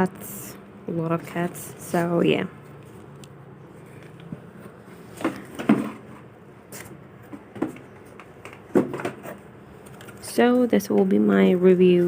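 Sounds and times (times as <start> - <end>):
objects knocking and tapping: 4.2 - 6.3, 7.2 - 9.2.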